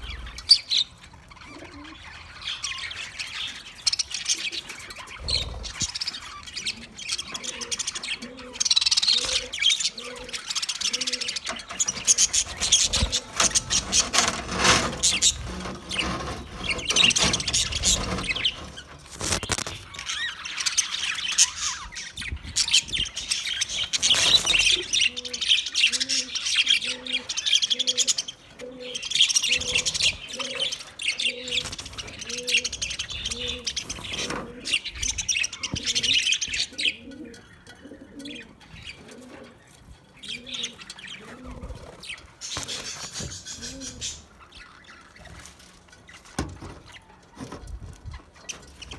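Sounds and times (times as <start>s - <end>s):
budgerigars chattering: 0.0s - 39.1s.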